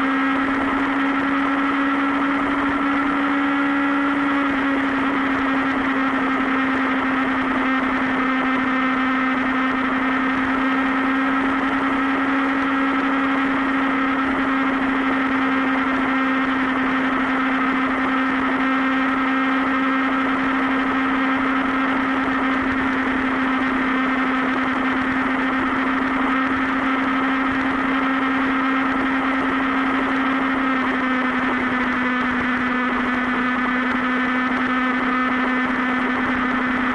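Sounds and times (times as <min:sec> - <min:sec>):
motorcycle engine cruising: 0:00.0 - 0:36.9.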